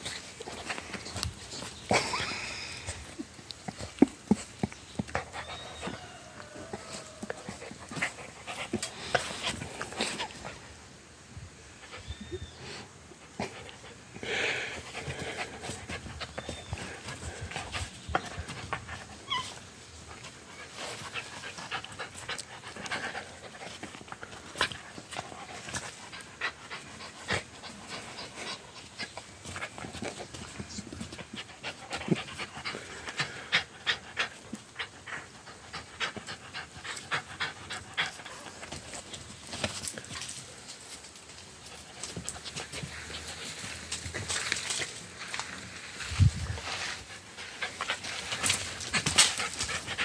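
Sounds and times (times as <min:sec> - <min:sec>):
dog panting: 0:20.4 - 0:39.2, 0:46.5 - 0:50.0.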